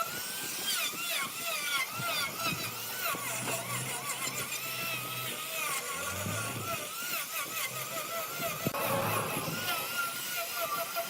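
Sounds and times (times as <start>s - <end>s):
wood lathe running: 0.0s - 11.0s.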